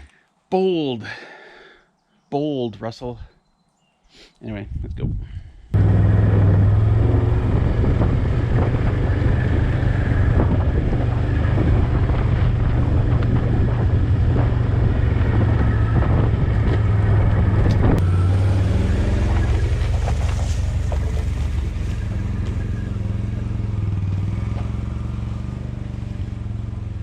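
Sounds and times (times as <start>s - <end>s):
atv engine running: 5.8s - 27.0s.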